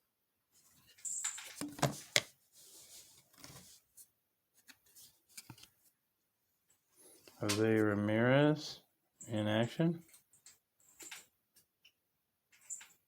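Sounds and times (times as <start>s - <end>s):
trading cards rustling: 0.9s - 3.9s.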